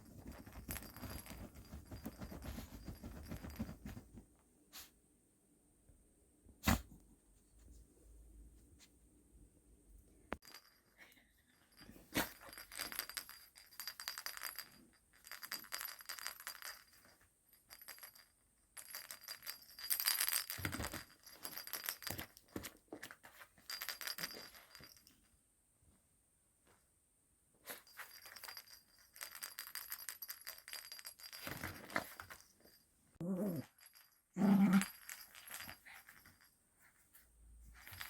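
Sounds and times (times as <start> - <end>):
dog toy rattling and jingling: 0.0 - 4.2, 10.4 - 25.3, 27.6 - 38.0.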